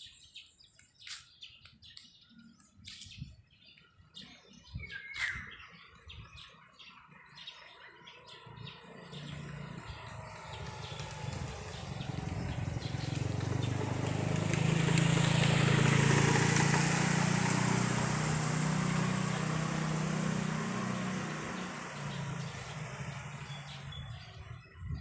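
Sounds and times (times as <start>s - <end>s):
motor vehicle passing by: 7.0s - 25.0s.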